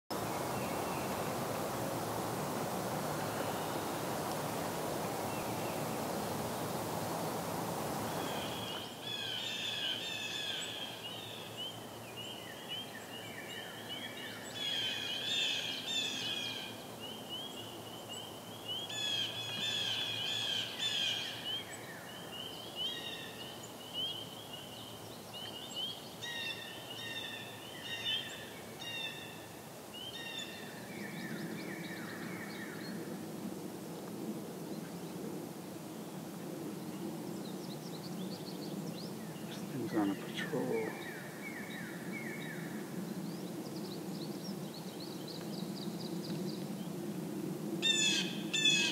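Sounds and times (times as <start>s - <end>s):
songbirds chirping: 0.1s - 33.1s, 36.0s - 47.0s
faint steady background noise: 0.1s - 48.9s.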